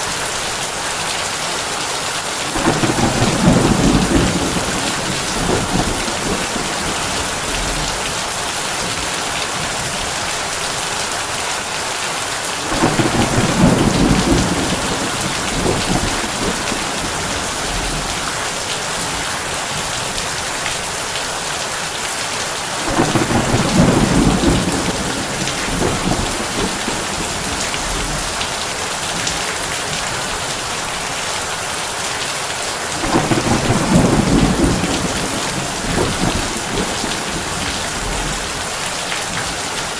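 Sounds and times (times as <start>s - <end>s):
heavy rain on a tin roof: 0.0s - 39.9s
low thunder rumbling: 2.5s - 10.5s, 12.6s - 20.6s, 22.8s - 30.6s, 33.0s - 39.9s.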